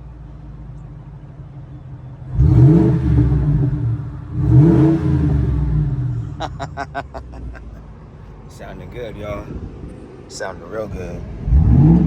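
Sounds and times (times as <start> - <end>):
truck engine revving: 2.3 - 7.6, 11.4 - 12.0.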